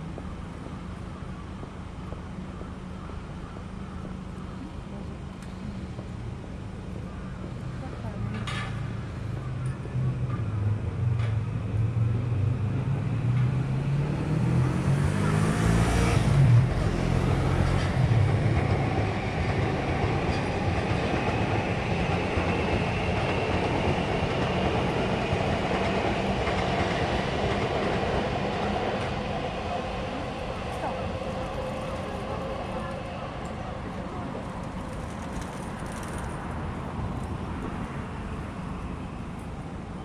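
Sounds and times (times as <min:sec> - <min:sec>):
electric train passing: 0:08.9 - 0:40.0.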